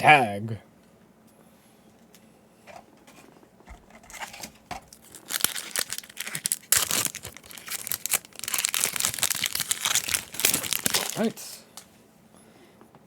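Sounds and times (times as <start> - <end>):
foil wrapper tearing and crinkling: 4.1 - 11.5.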